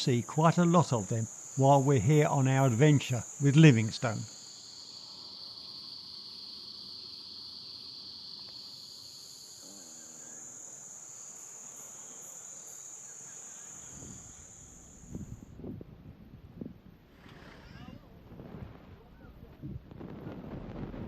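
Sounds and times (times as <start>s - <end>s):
insects droning high-pitched: 0.0s - 15.8s.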